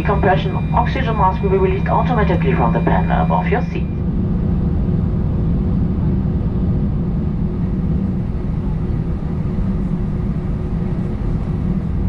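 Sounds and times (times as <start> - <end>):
faint steady hum: 0.0 - 4.7
airplane cabin rumble: 0.0 - 12.0.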